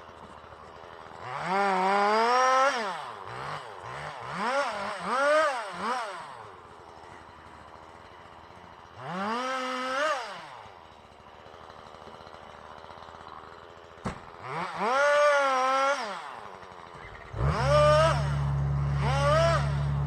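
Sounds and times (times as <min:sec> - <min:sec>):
chainsaw revving: 0:00.8 - 0:06.6, 0:08.7 - 0:20.0
low heavy engine drone: 0:17.0 - 0:20.0.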